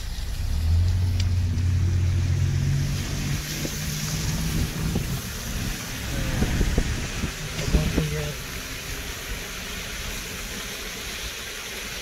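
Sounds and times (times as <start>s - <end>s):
car engine hum: 0.0s - 12.0s
tyres hissing on wet road: 0.0s - 12.0s.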